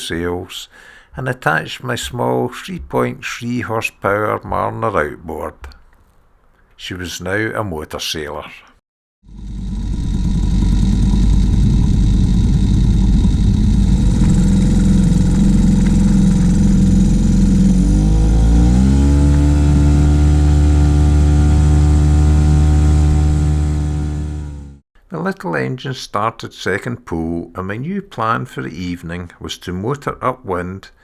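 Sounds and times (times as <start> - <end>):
outboard motor running: 9.2 - 24.8.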